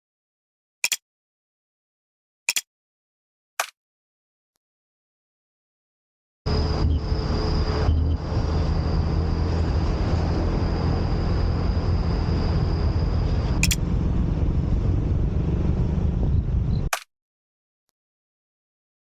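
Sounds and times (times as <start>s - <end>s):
click: 0.8s - 1.0s
thin high whine: 6.5s - 13.9s
scooter engine rumble: 6.5s - 16.8s
road and wind noise: 6.5s - 16.9s.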